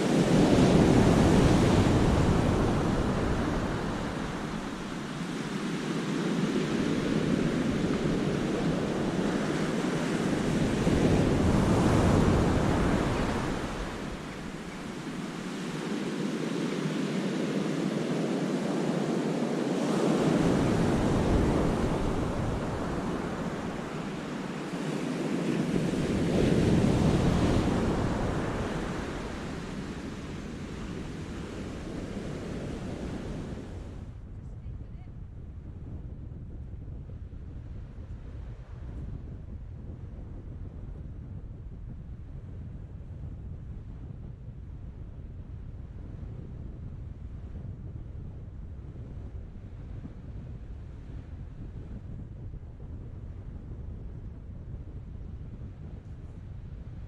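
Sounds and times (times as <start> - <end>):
sea waves breaking: 0.0 - 34.0
wind buffeting microphone: 0.0 - 57.0.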